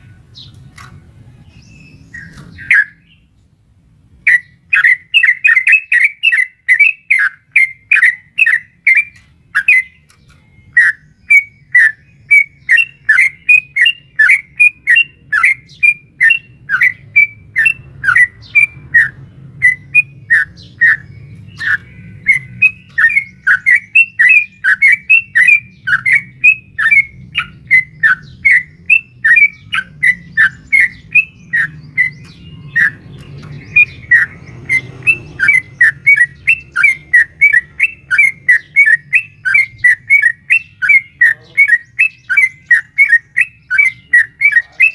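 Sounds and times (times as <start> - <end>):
bird chirping rapidly: 1.4 - 3.3, 4.2 - 44.9.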